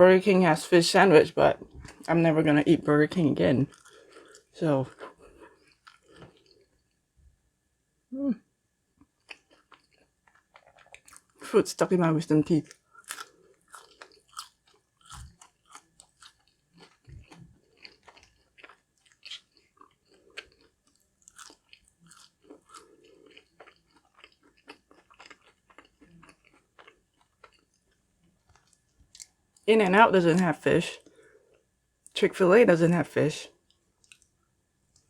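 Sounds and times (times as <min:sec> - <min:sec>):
chewing crispy food: 0:03.6 - 0:07.0, 0:09.0 - 0:11.6, 0:12.5 - 0:29.7, 0:33.6 - 0:35.0.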